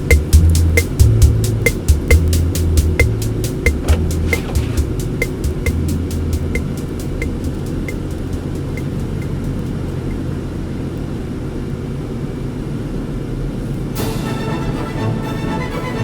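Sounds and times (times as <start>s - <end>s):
music: 0.0s - 10.0s, 14.0s - 16.0s
regular ticking: 0.0s - 10.3s
car engine and road noise: 0.0s - 14.0s.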